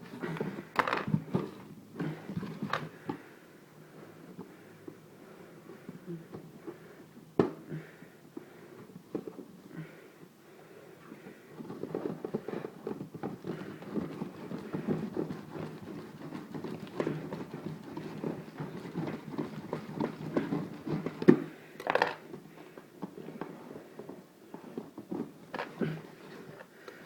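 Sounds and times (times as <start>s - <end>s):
harsh cardboard noise: 11.7s - 21.6s
cardboard knocking and scraping: 13.0s - 21.4s.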